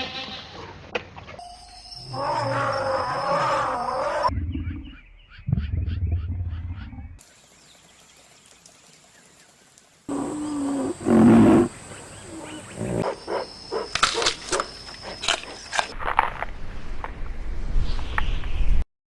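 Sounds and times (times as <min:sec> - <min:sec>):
big cat roaring: 0:10.1 - 0:13.1.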